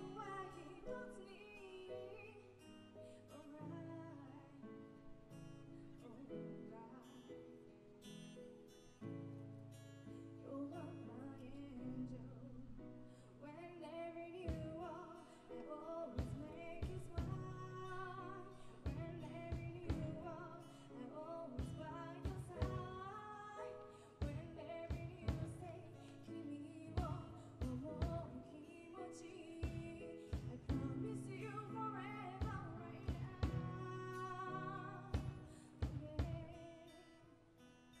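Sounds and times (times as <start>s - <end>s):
person singing: 0.0s - 2.6s, 10.5s - 37.1s
strummed acoustic guitar: 0.0s - 38.0s.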